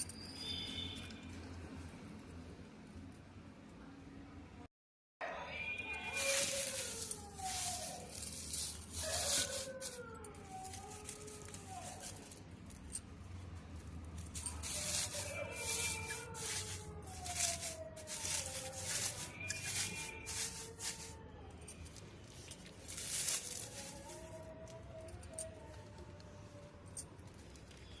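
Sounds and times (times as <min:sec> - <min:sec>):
rubbing or rustling strokes: 0:06.1 - 0:12.9, 0:14.2 - 0:21.2, 0:22.3 - 0:24.4.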